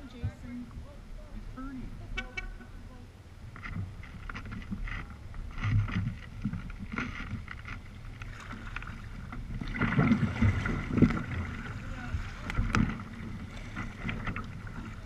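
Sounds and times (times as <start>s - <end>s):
wind noise on microphone: 1.9s - 15.0s
water sloshing and splashing: 3.5s - 15.0s.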